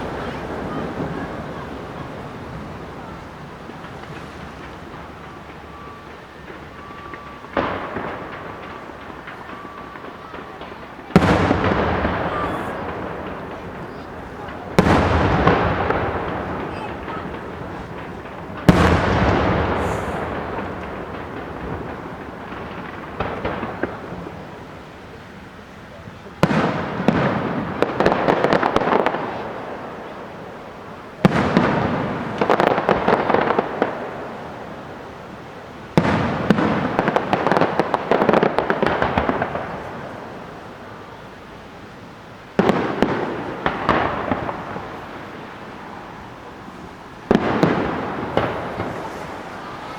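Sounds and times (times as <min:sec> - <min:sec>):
firework shells bursting: 0:00.0 - 0:24.8, 0:42.5 - 0:49.9.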